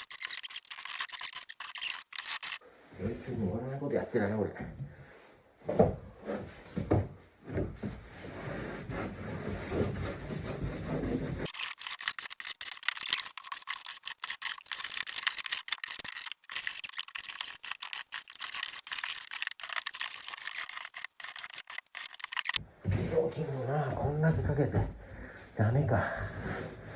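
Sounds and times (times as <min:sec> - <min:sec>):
rapid scratchy scrubbing: 0:00.0 - 0:02.6, 0:10.0 - 0:22.6.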